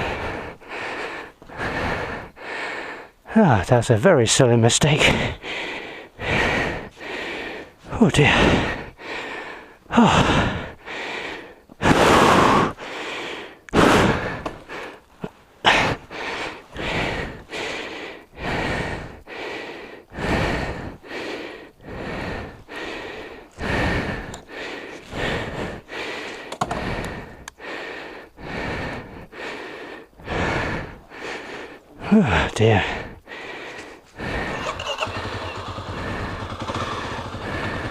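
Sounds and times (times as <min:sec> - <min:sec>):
person breathing hard: 0:00.0 - 0:03.6, 0:04.9 - 0:37.9.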